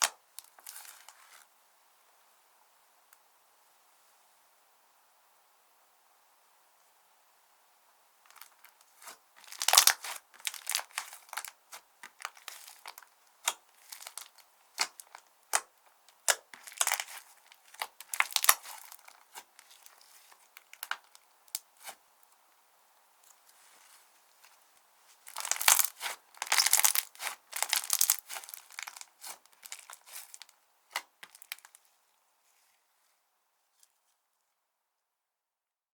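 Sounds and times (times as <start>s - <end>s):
slime squished by hand: 8.3s - 22.0s, 25.1s - 31.8s.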